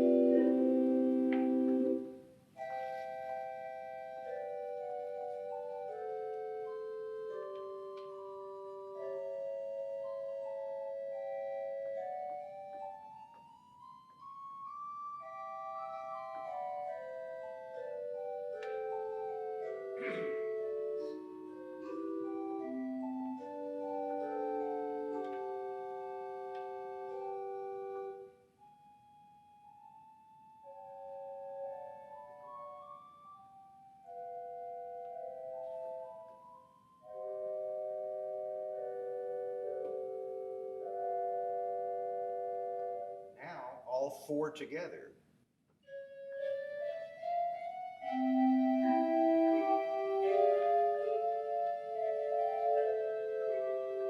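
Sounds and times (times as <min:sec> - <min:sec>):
pipe organ playing chords: 0:00.0 - 0:45.0, 0:45.8 - 0:54.0.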